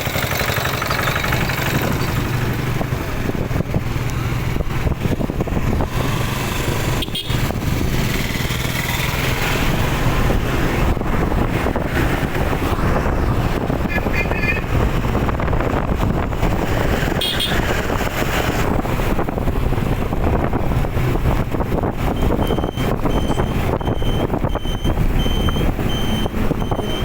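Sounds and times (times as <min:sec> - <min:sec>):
road traffic: 0:00.0 - 0:27.0
wind on microphone: 0:01.2 - 0:27.0
short high beeps: 0:22.4 - 0:27.0.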